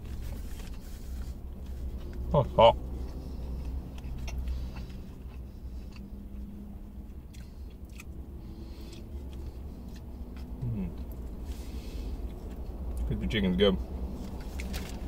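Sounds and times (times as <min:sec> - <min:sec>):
chewing crispy food: 0:00.0 - 0:13.1
steady low hum: 0:00.0 - 0:15.0
soft throat hums: 0:10.6 - 0:11.0.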